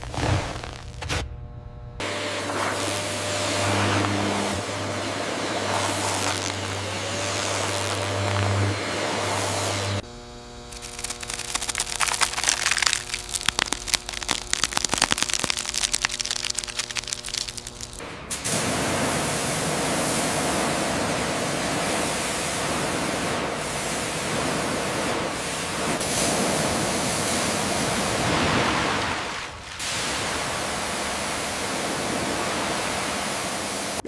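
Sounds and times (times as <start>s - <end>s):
steady hum: 0.0s - 28.3s
crackling clicks: 10.7s - 18.0s
spraying hiss: 13.5s - 28.7s, 29.8s - 34.0s.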